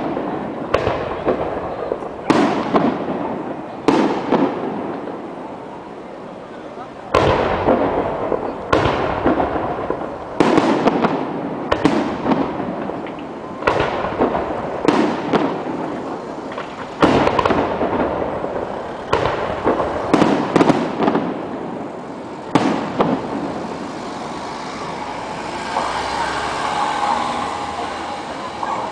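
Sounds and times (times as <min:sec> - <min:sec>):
firework crackling: 0:00.0 - 0:28.9
steady background din: 0:00.0 - 0:28.9.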